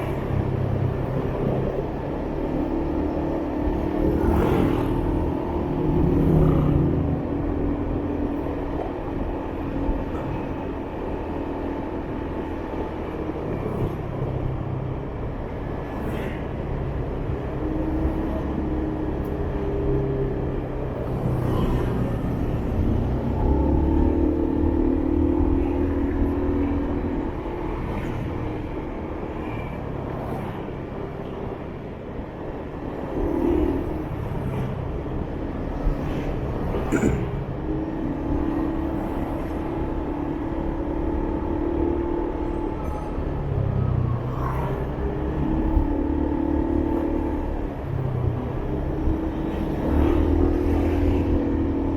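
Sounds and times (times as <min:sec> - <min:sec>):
low wind rumble on microphone: 0:00.0 - 0:51.9
passing vehicle engines: 0:00.0 - 0:51.9.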